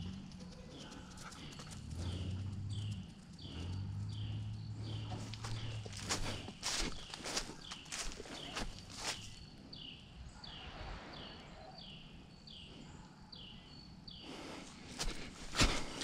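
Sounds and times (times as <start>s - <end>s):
footsteps in dry leaves: 4.9s - 9.4s, 14.6s - 16.0s.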